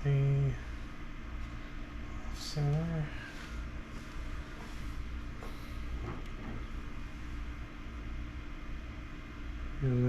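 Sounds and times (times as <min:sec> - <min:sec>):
low machine hum: 0:00.0 - 0:10.0
faint handling sounds: 0:00.6 - 0:07.5.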